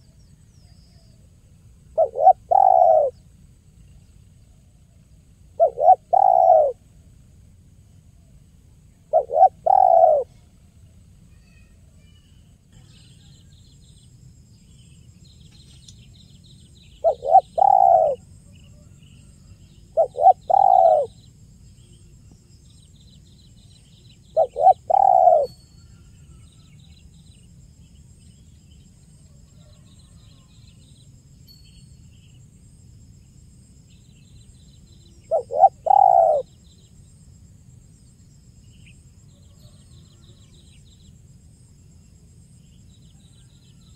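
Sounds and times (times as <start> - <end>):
small birds twittering: 0.0 - 6.9, 8.3 - 43.9
dove cooing: 2.0 - 3.2, 5.6 - 6.8, 9.1 - 10.3, 17.0 - 18.3, 19.9 - 21.2, 24.3 - 25.5, 35.2 - 36.5.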